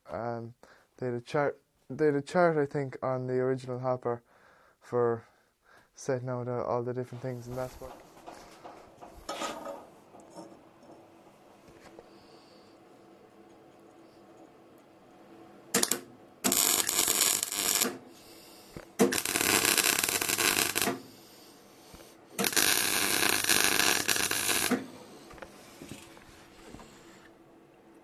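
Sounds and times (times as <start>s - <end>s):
arc welding: 15.7s - 25.0s.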